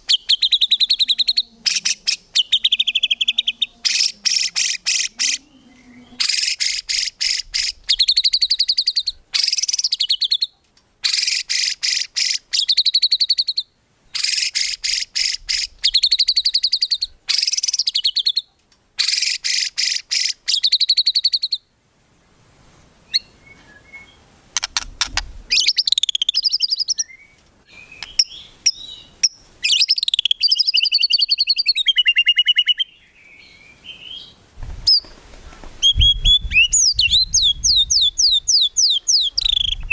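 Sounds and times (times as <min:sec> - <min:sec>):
bird singing: 0:00.0 - 0:21.7, 0:23.1 - 0:35.1, 0:35.8 - 0:39.9.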